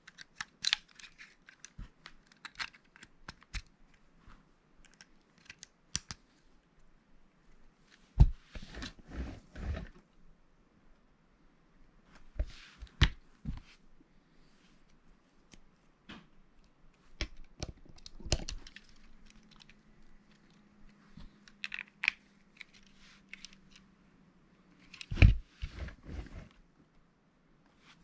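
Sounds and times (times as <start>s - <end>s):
plastic bricks clicking together: 21.5s - 22.8s.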